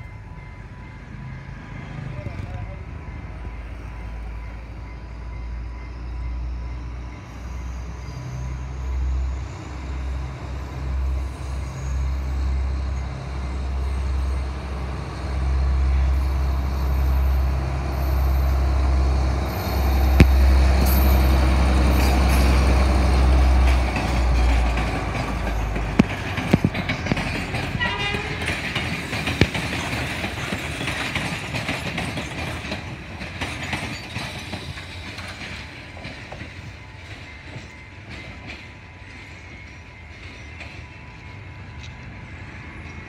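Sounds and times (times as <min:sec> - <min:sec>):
diesel train passing: 0:00.0 - 0:43.0.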